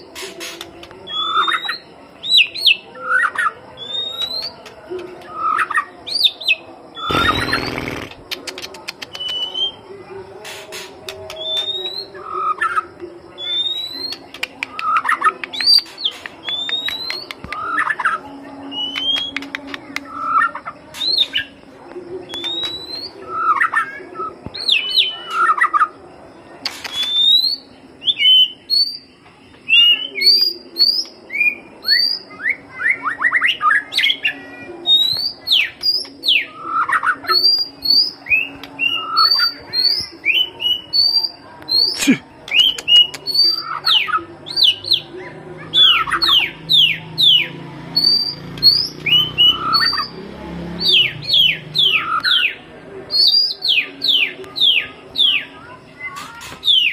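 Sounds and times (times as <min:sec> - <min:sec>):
bird singing whistled phrases: 0:01.1 - 0:04.6, 0:09.1 - 0:09.8, 0:11.3 - 0:12.8, 0:13.4 - 0:21.5, 0:22.3 - 0:25.8, 0:26.8 - 0:29.1, 0:29.7 - 0:45.0, 0:45.7 - 0:50.2, 0:50.8 - 0:56.9.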